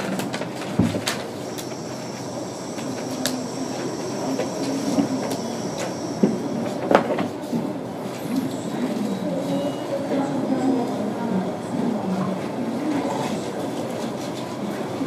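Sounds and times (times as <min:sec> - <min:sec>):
distant trains rumbling: 0:00.0 - 0:15.0
faint steady high tone: 0:08.3 - 0:10.9.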